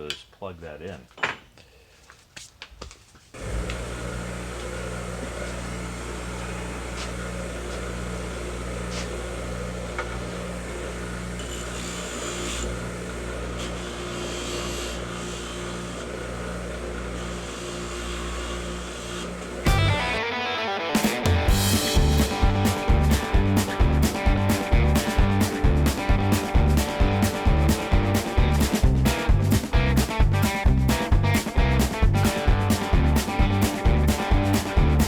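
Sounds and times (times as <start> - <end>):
electric motor humming: 3.4 - 20.2.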